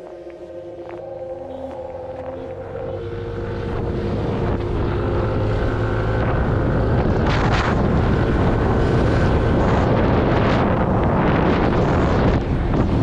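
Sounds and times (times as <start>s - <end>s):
motorcycle riding: 0.0s - 13.0s
wind rushing over microphone: 0.0s - 13.0s.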